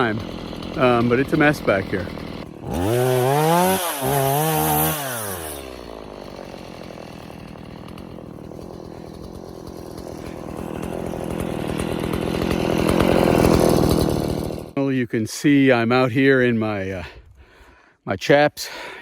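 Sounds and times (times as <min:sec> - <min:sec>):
chainsaw revving and idling: 0:00.0 - 0:14.8.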